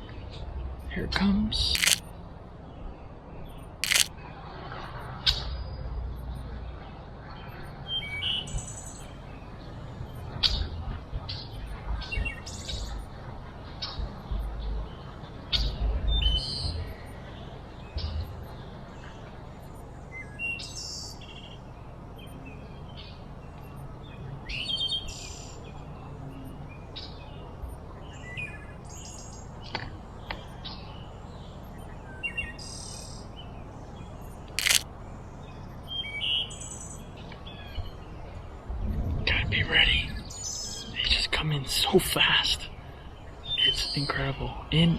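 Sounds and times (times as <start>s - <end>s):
outdoor background noise: 0.0s - 44.9s
sharp click: 1.7s - 2.0s, 3.8s - 4.1s, 34.6s - 34.8s
songbirds chirping: 5.6s - 44.9s.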